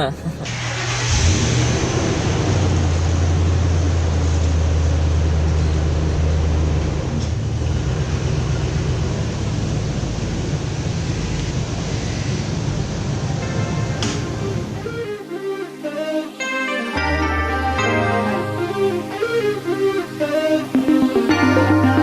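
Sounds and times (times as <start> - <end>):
car engine idling: 0.5 - 15.0.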